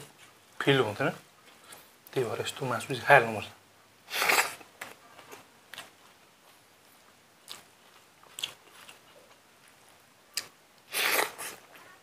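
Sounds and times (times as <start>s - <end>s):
chewing crunches and clicks: 7.4s - 9.4s
loud bite: 10.4s - 11.6s.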